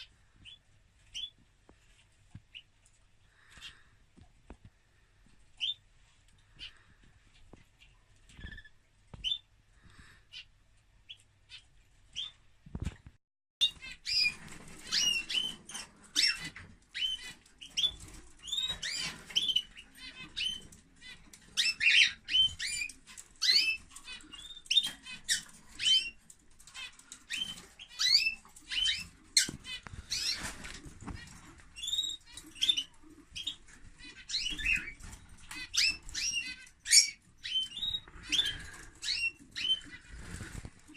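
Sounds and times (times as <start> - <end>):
finches chirping and twittering: 5.6 - 5.8, 6.5 - 9.5, 13.6 - 40.9.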